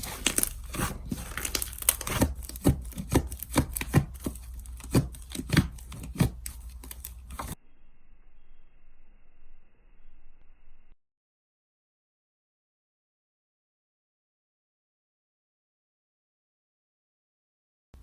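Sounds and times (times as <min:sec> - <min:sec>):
slime popping and crackling: 0:00.0 - 0:07.6.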